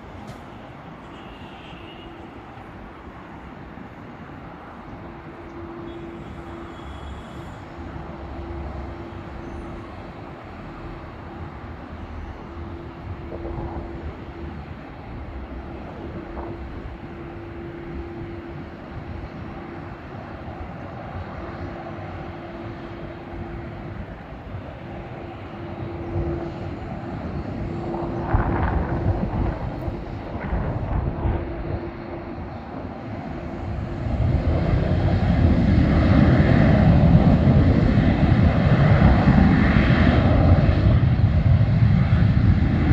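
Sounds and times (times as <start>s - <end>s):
jet engines humming: 0.0s - 42.9s.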